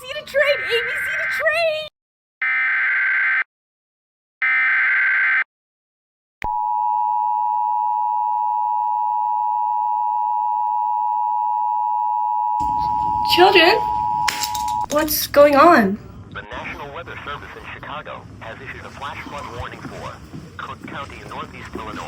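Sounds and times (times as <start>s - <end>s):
harsh two-tone alarm signal: 6.5s - 14.9s.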